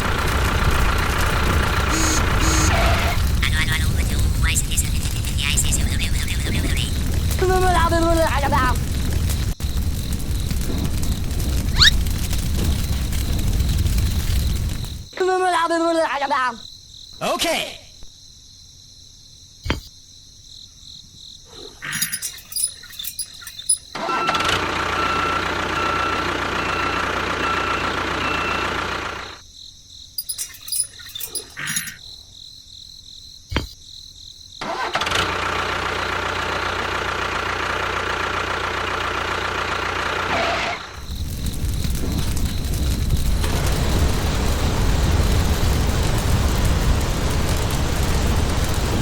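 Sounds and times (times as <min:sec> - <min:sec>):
crackles and clicks: 0:00.0 - 0:15.2, 0:21.6 - 0:24.0, 0:30.2 - 0:32.0, 0:40.8 - 0:49.0
small motor whining: 0:01.9 - 0:03.2.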